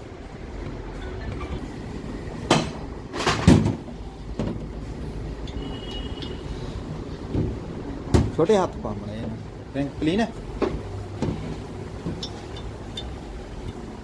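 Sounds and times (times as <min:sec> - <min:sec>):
metal clunks: 0:02.5 - 0:04.9, 0:07.3 - 0:08.4, 0:10.6 - 0:13.2
metal engine parts handled: 0:10.8 - 0:13.9.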